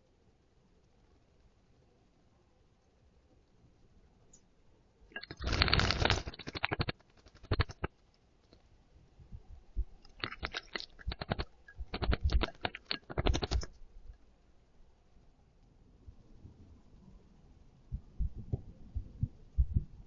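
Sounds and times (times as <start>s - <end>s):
bird splashing in water: 5.1s - 7.9s, 10.0s - 13.7s.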